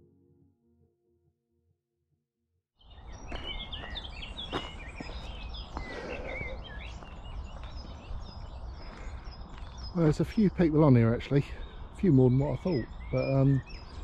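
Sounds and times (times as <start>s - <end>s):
songbirds chirping: 2.8s - 14.0s.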